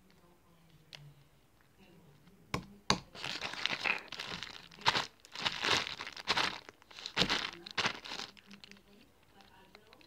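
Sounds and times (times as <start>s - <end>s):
slime squishing and crackling: 3.1s - 8.9s.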